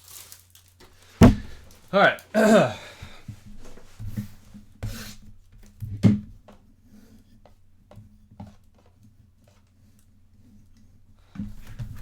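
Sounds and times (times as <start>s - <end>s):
cards and packaging rustling: 0.0s - 1.0s.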